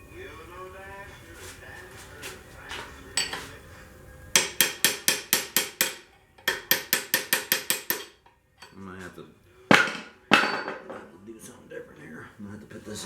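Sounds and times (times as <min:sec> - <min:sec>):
hammer striking steel: 0:03.2 - 0:03.5, 0:04.4 - 0:08.8, 0:09.7 - 0:10.9.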